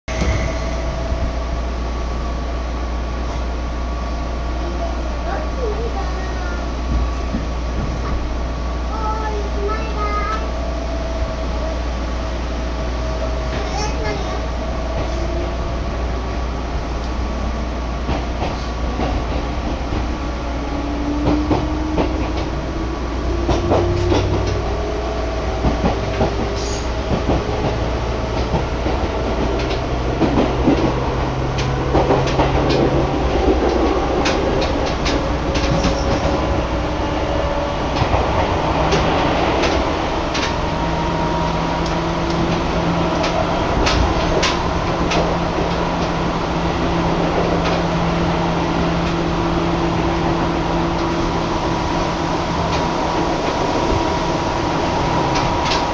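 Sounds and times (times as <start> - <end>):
train low rumble: 0.1 - 55.9
wheels clicking over rail joints: 25.5 - 36.8, 41.8 - 46.2.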